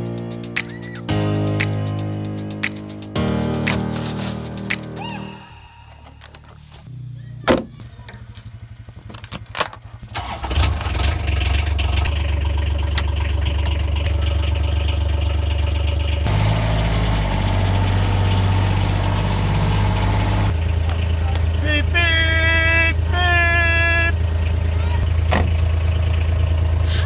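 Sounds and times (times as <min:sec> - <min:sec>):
vehicle engine starting and running: 0:05.4 - 0:27.0.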